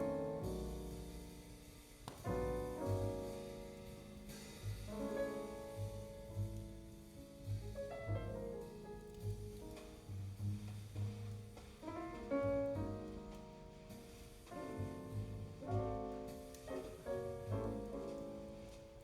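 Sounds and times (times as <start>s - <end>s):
double bass notes: 0.0s - 19.0s
piano phrases and chords: 0.0s - 19.0s.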